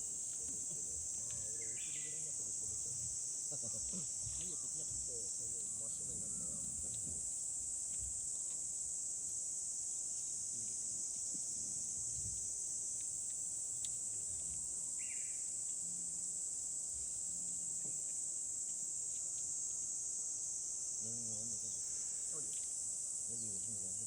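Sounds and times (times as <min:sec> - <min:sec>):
high-pitched insect chorus: 0:00.0 - 0:24.0
faint ticks: 0:00.1 - 0:02.0, 0:07.8 - 0:08.7, 0:12.3 - 0:14.7, 0:17.4 - 0:19.9.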